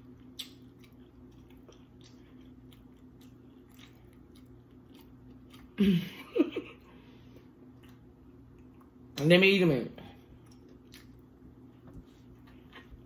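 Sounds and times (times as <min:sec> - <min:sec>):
person chewing food: 0:00.0 - 0:06.1, 0:07.2 - 0:09.1, 0:10.2 - 0:13.0.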